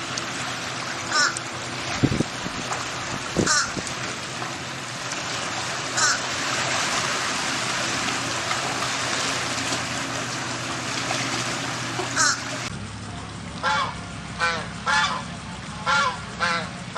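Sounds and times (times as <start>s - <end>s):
flowing water rushing: 0.0s - 12.7s.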